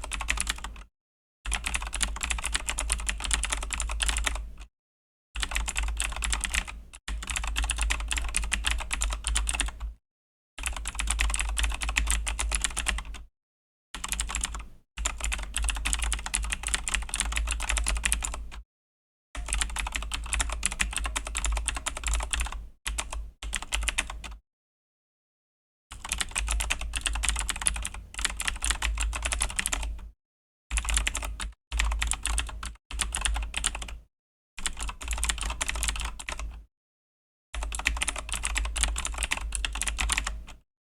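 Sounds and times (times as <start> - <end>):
mechanical keyboard typing: 0.0 - 0.9, 1.5 - 4.5, 5.4 - 9.9, 10.6 - 13.2, 14.0 - 18.5, 19.4 - 24.4, 26.0 - 29.9, 30.8 - 34.0, 34.6 - 36.6, 37.6 - 40.6.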